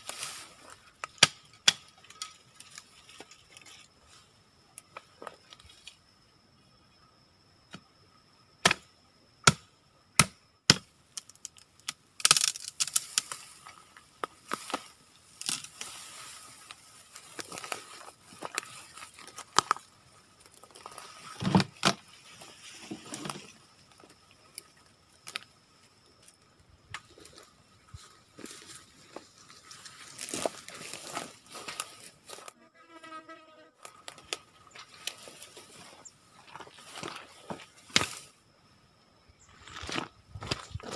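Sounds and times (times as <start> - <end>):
branches and leaves crackling: 0.0 - 6.0, 12.2 - 32.6, 33.8 - 38.3
chopping strikes: 9.4 - 10.8.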